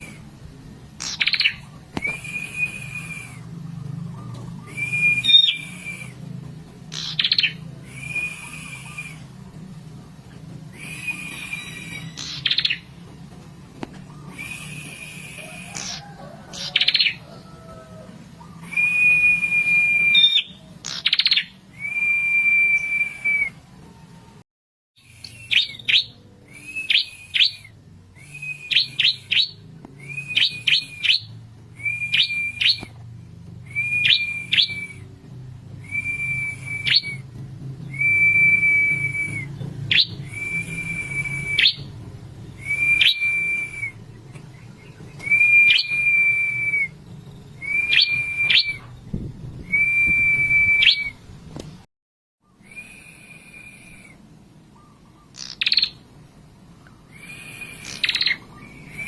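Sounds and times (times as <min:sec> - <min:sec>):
small songbird singing: 0:01.0 - 0:13.0, 0:18.3 - 0:23.3, 0:25.0 - 0:51.2, 0:52.5 - 0:56.1, 0:56.8 - 0:59.0.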